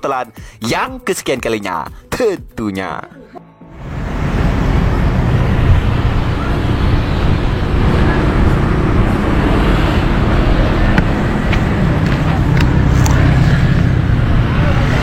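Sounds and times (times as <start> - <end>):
street traffic: 3.3 - 15.0
wind buffeting microphone: 3.9 - 15.0.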